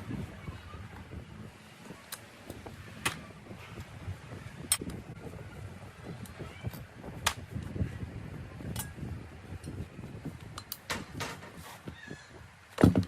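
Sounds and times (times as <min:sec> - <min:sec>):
tools clicking and knocking: 0:10.5 - 0:11.6.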